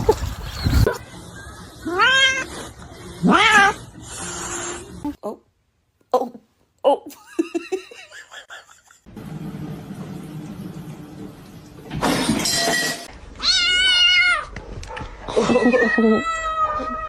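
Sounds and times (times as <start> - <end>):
cat meowing: 13.4 - 14.5.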